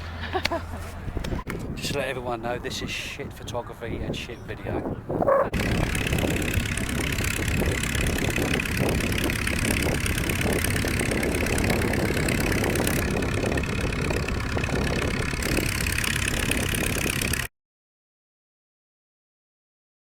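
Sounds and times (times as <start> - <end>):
engine idling: 5.5 - 17.5.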